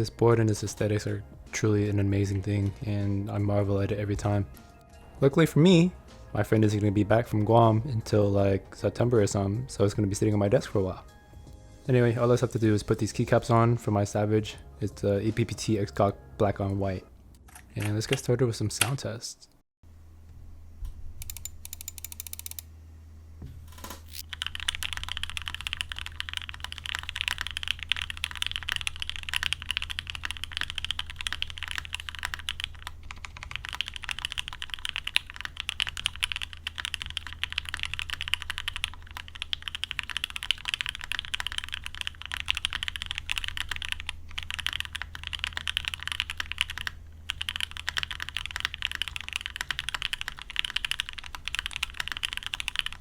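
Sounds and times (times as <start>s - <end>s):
mechanical keyboard typing: 21.2s - 22.6s, 24.1s - 53.0s.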